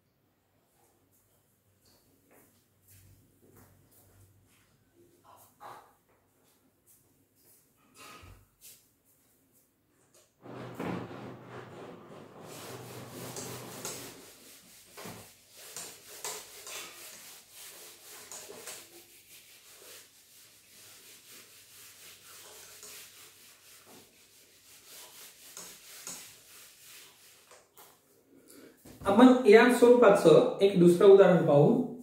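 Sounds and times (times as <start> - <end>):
scratching strokes on writing surface: 11.7 - 28.1.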